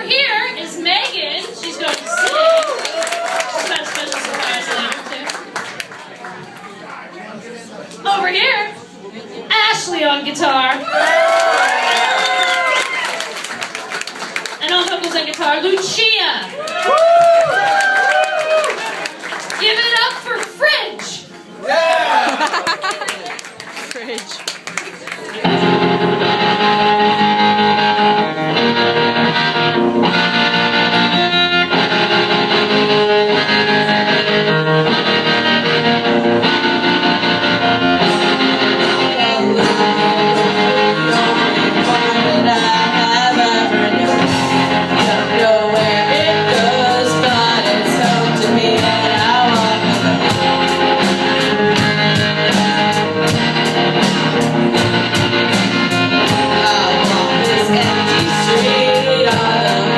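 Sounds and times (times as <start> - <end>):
rock band playing: 25.3 - 59.9.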